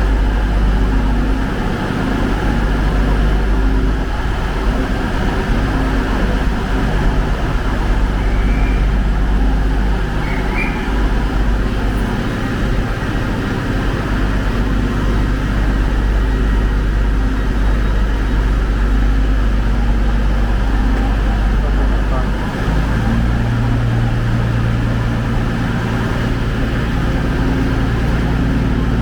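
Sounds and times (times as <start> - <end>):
train engine droning: 0.0 - 29.0
faint high squeaks: 8.2 - 9.1, 10.2 - 11.1.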